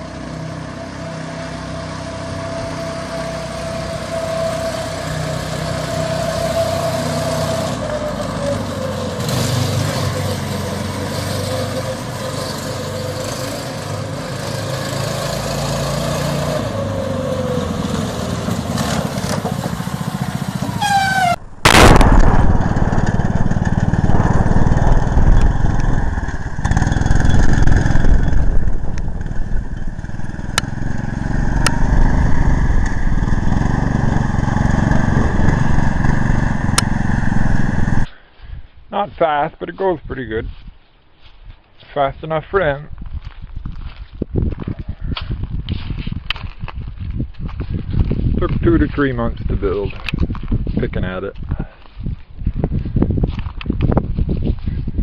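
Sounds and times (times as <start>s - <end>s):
small petrol engine running: 22.7s - 38.1s.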